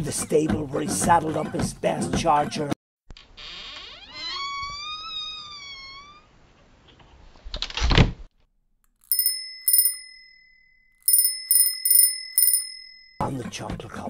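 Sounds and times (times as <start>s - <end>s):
bicycle bell ringing: 9.0s - 13.2s.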